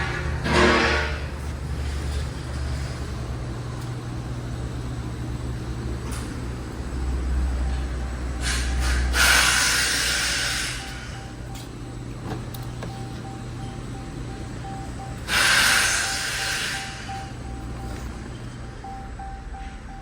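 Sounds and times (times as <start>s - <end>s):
car engine idling: 1.2s - 20.0s
loud rushing hiss: 8.4s - 10.9s, 15.3s - 17.2s
hiss: 8.4s - 11.0s, 15.3s - 17.1s.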